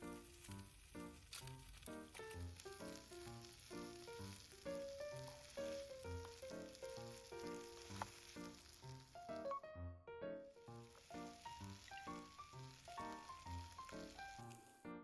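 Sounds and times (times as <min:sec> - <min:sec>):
food sizzling in a pan: 0:00.0 - 0:09.4, 0:10.6 - 0:14.8
light background music: 0:00.0 - 0:15.0.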